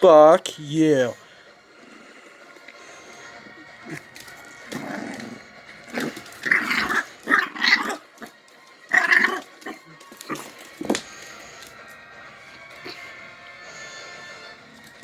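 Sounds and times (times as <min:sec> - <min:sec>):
puppy growling and barking: 0:03.2 - 0:10.8, 0:12.7 - 0:13.2.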